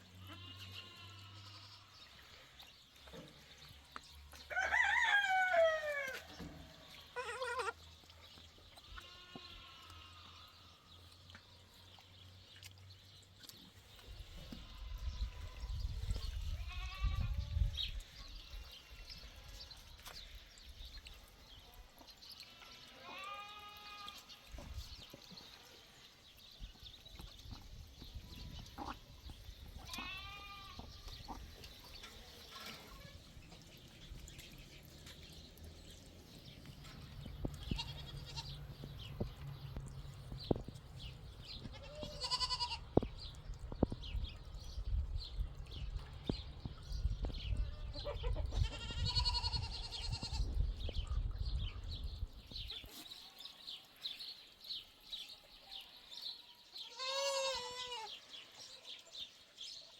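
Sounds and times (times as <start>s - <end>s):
goats bleating: 0.2s - 2.0s, 7.1s - 7.8s, 9.0s - 10.6s, 22.5s - 24.3s, 29.8s - 31.0s, 41.7s - 42.9s, 48.2s - 50.4s, 56.8s - 58.1s.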